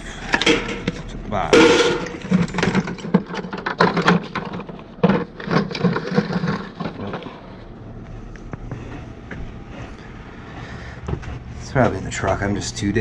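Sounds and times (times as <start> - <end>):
tools clattering in toolbox: 0.2 - 7.4.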